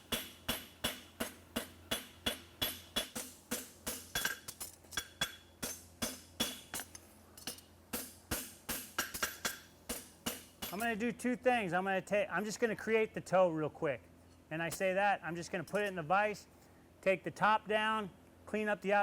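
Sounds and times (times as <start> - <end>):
hammer striking metal on anvil: 0.0 - 10.9.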